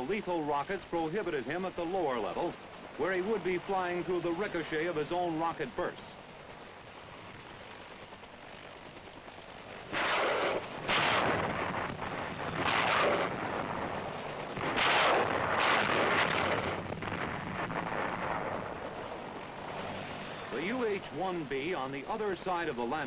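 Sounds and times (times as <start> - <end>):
rocket blasts: 9.9 - 19.0.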